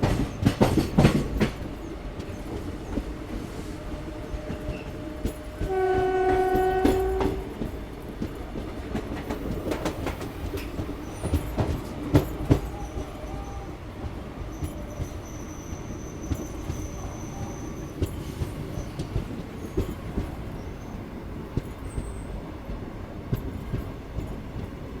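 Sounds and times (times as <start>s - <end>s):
train wheels clattering on rails: 0.0s - 25.0s
train horn blast: 5.6s - 7.7s.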